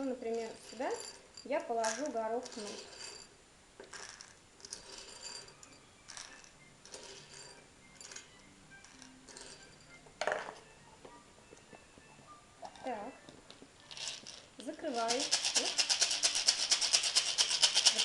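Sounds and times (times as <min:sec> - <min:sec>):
faint background music: 0:00.0 - 0:18.0
chickpeas rattling in plastic egg: 0:01.7 - 0:03.1, 0:13.9 - 0:18.0.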